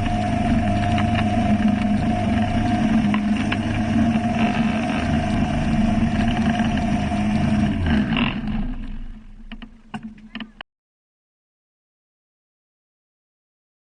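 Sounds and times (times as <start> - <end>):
boat engine droning: 0.0 - 10.6.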